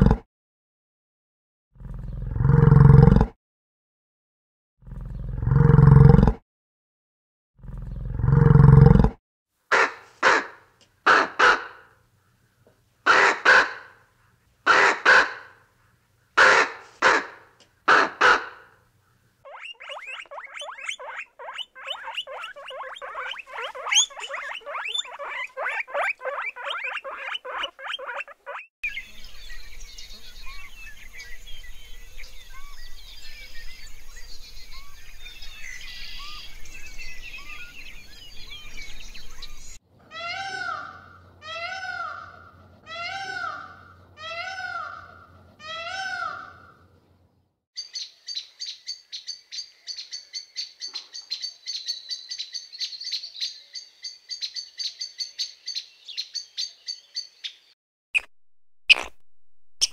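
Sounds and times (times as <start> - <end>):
ravens calling harshly: 9.7 - 11.9, 13.0 - 14.0, 14.7 - 15.6, 16.4 - 18.8, 40.1 - 46.8
small birds chirping: 19.0 - 39.8, 47.8 - 58.3
guinea pigs squeaking: 19.5 - 28.7.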